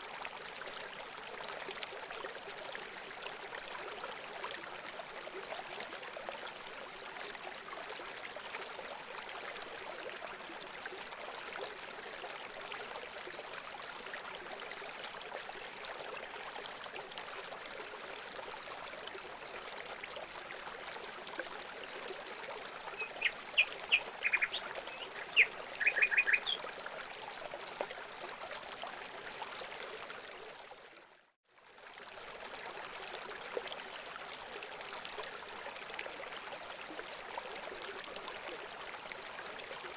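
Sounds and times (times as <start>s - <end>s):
trickling running water: 15.4s - 29.8s
short sharp bird chirps: 23.0s - 26.6s.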